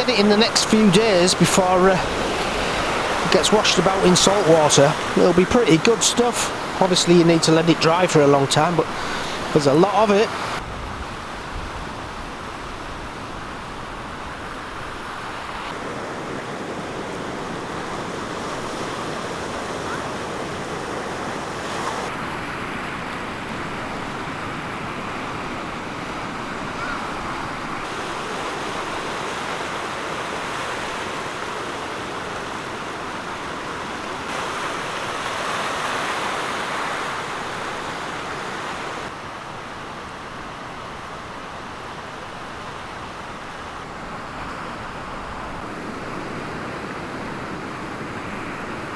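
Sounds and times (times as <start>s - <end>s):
floodwater rushing: 0.0s - 10.7s, 12.8s - 39.2s.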